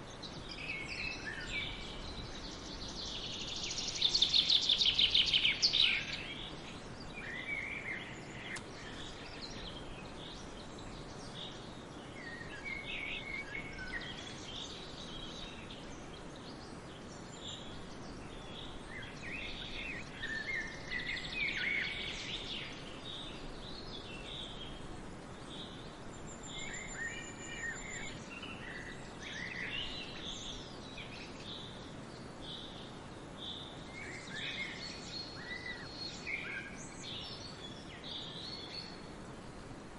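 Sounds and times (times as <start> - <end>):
outdoor ambient hiss: 0.0 - 39.9
wild birds chirping: 0.0 - 39.9.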